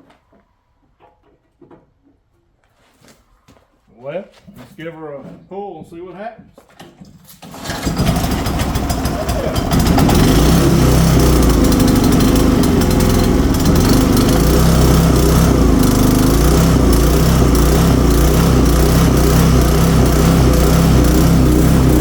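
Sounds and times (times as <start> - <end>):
generator engine running: 7.5 - 22.0.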